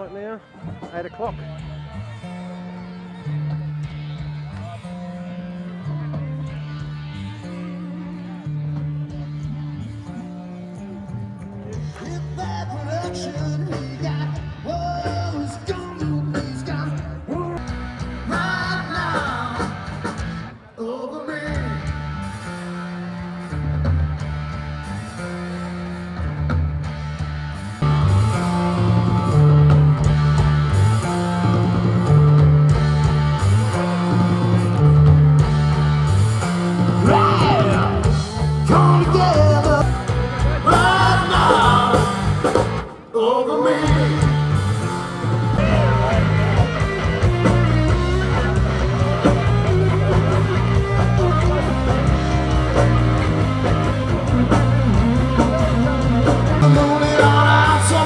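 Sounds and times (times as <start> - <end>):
electric guitar: 0.0 - 58.0
person singing: 9.8 - 17.6, 18.2 - 19.9, 20.8 - 22.3, 36.9 - 58.0
repeating bass line: 21.5 - 42.9, 43.8 - 58.0.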